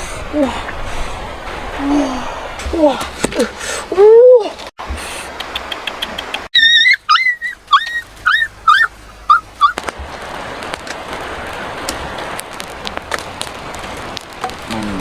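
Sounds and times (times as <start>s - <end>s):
dog whining: 6.6s - 9.8s
steady hiss: 8.9s - 15.0s.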